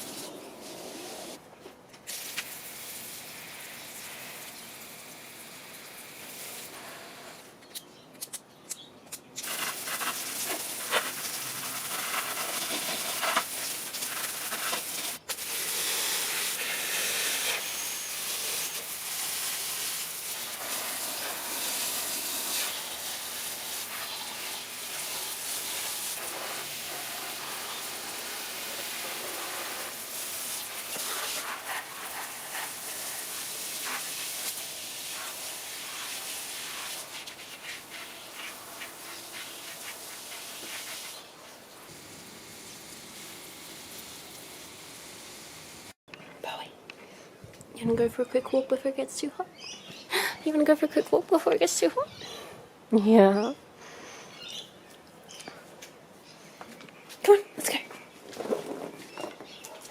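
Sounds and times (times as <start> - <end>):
garden hose spraying water: 0.0 - 1.4, 2.0 - 7.6, 9.4 - 46.0.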